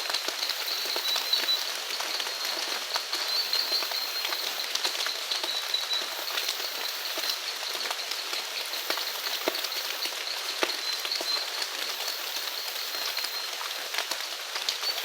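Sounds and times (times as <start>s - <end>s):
rain falling: 0.0s - 15.0s
raindrops tapping: 0.0s - 15.0s.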